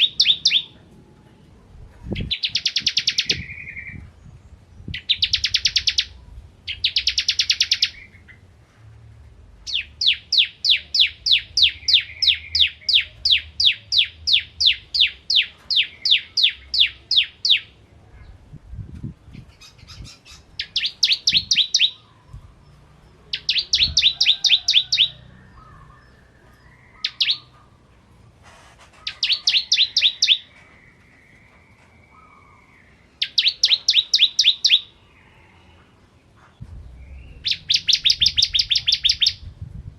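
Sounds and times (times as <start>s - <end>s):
bird singing sharp high notes: 37.0s - 39.5s.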